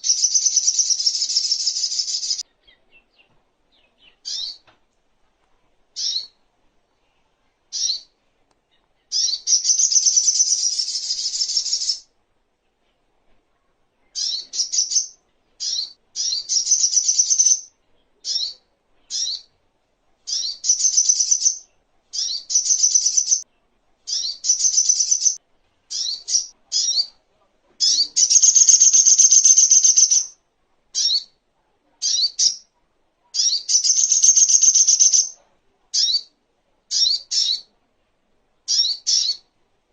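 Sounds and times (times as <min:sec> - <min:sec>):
bird chirps and trills: 0:00.0 - 0:04.6, 0:06.0 - 0:06.4, 0:07.7 - 0:08.1, 0:08.7 - 0:12.1, 0:14.1 - 0:19.5, 0:20.2 - 0:23.4, 0:24.1 - 0:27.2, 0:27.8 - 0:30.4, 0:31.0 - 0:31.4, 0:32.0 - 0:32.7, 0:33.4 - 0:35.4, 0:36.9 - 0:37.7, 0:38.7 - 0:39.5.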